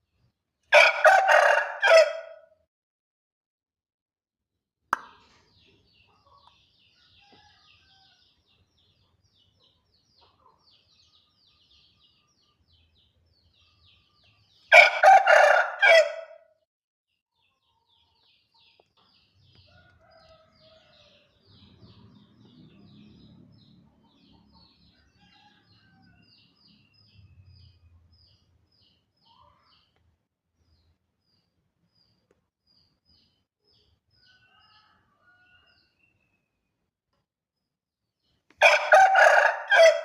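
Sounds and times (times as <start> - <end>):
birds chirping: 5.2 - 15.8, 17.5 - 30.0.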